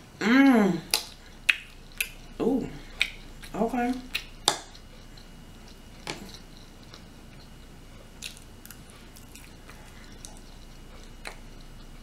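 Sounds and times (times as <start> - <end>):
wet mouth clicks: 0.9 - 2.2, 3.0 - 3.3
person chewing food: 0.9 - 12.0.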